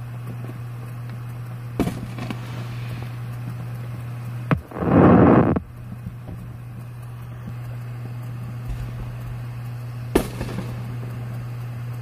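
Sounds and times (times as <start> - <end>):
steady low hum: 0.0 - 12.0
firework bang: 1.8 - 2.7, 4.5 - 6.4, 8.6 - 9.2, 10.1 - 11.0.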